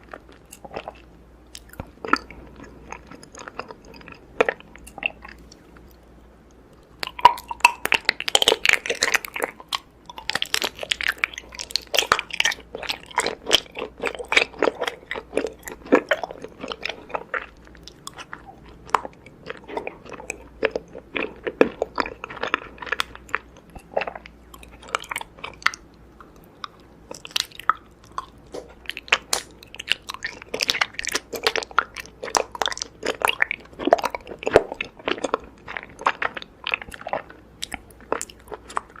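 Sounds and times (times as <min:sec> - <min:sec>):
chewing honeycomb: 0:00.0 - 0:06.0, 0:06.7 - 0:39.0.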